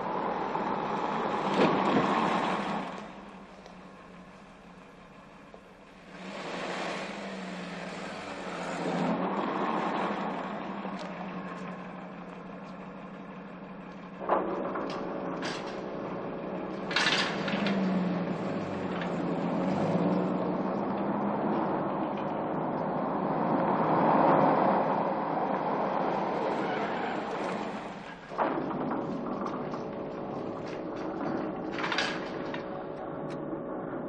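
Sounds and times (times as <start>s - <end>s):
car engine idling: 0.0s - 23.1s.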